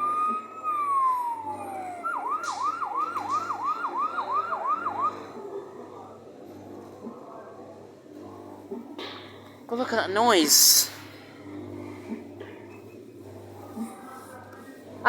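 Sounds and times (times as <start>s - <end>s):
fire engine siren: 0.0s - 5.5s.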